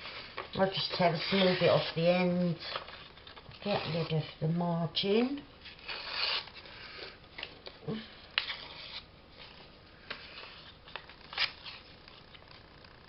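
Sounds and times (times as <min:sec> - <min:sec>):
paper ripping and rustling: 0:05.7 - 0:06.8, 0:08.4 - 0:12.4.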